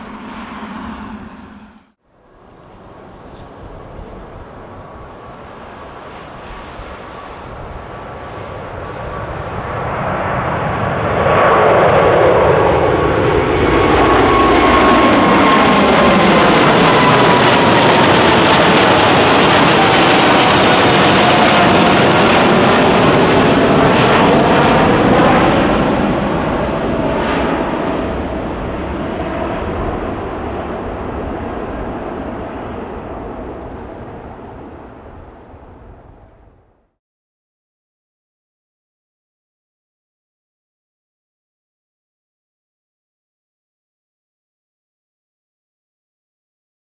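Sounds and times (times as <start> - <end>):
jet aircraft passing overhead: 0.0 - 36.9.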